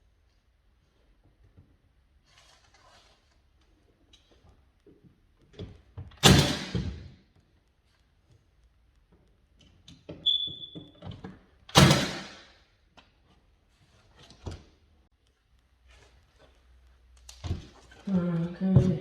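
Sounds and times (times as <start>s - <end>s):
short high squeak: 10.2s - 10.9s.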